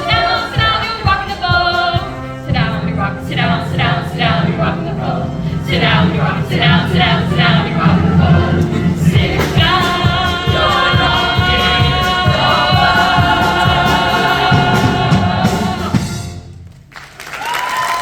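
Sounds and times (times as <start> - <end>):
choir and band holding chord: 0.0 - 16.5
drums beating: 0.0 - 18.0
applause: 16.7 - 18.0.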